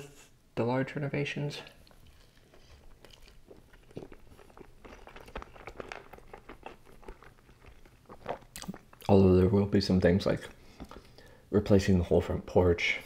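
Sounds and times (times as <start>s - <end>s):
person chewing crunchy bread: 1.7s - 9.2s, 10.5s - 11.3s
wet mouth clicks: 1.8s - 9.1s.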